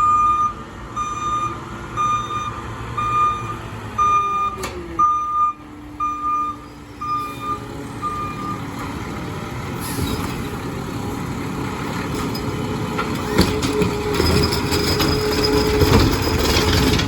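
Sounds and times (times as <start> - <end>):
truck reversing beeper: 0.0 - 10.7
diesel engine revving: 0.0 - 17.0.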